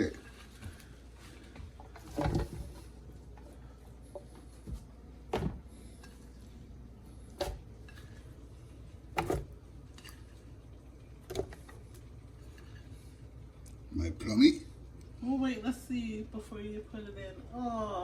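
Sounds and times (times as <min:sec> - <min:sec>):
faint low room hum: 0:00.0 - 0:18.0.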